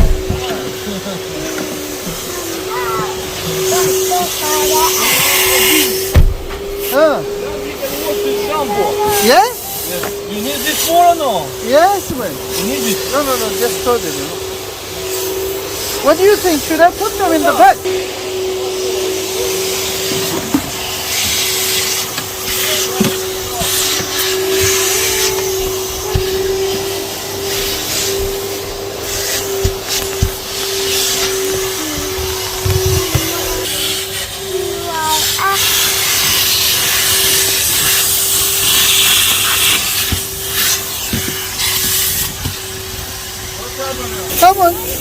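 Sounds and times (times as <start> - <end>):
air hissing through nozzle: 0.0 - 45.0
vacuum cleaner motor whine: 0.0 - 45.0
short low thump: 6.1 - 6.6.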